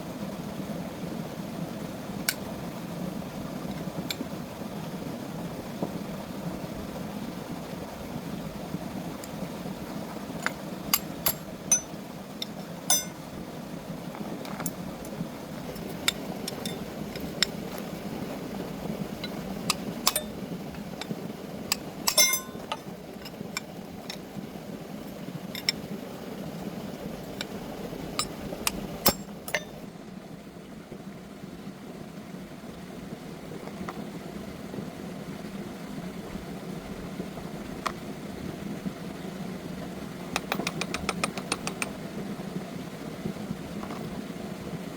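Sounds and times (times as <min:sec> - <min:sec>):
steady low hum: 0:00.0 - 0:44.9
metallic clinks of hand tools: 0:12.9 - 0:13.2, 0:22.1 - 0:22.8.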